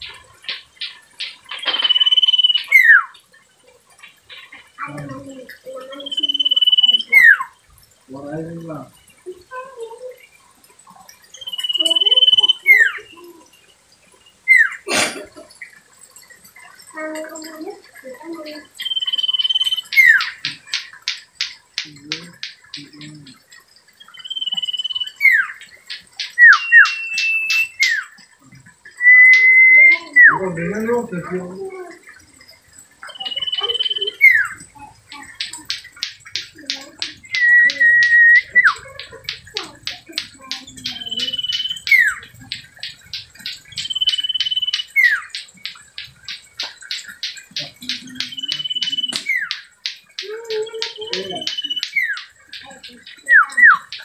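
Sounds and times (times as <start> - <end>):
bird singing whistles and calls: 0.0 - 3.2, 4.3 - 7.6, 11.3 - 13.4, 14.5 - 14.8, 18.7 - 23.4, 24.0 - 28.2, 28.9 - 30.9, 33.0 - 54.0.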